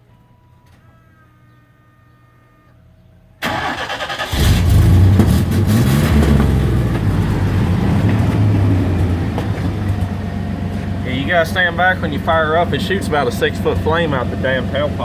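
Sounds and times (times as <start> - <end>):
starter motor cranking: 3.4 - 6.0
truck engine revving and idling: 3.4 - 15.0.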